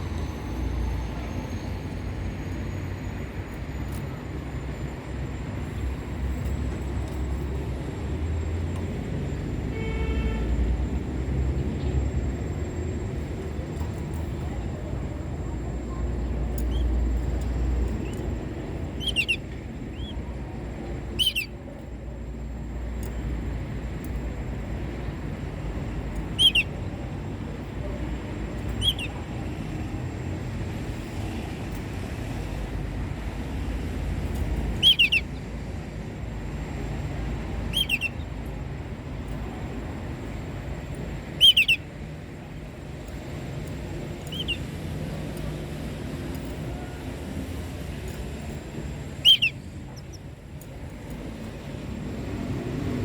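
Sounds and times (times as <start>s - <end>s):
canary chirping: 16.6s - 20.2s, 21.0s - 21.6s, 26.3s - 26.8s, 28.6s - 29.2s, 34.6s - 35.4s, 37.6s - 38.3s, 41.3s - 41.9s, 44.1s - 44.7s, 49.2s - 50.2s.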